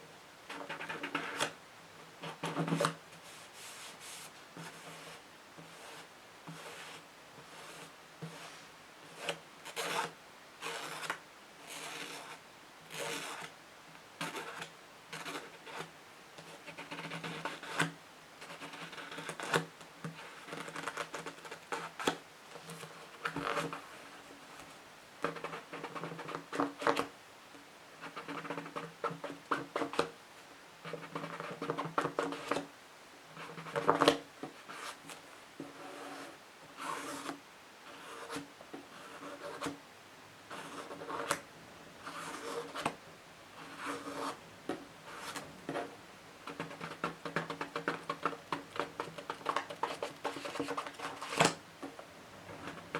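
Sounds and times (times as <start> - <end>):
fingernails scratching on books: 3.7 - 13.5, 14.2 - 23.8, 35.6 - 39.8, 40.5 - 41.4, 42.0 - 42.9, 43.6 - 51.6.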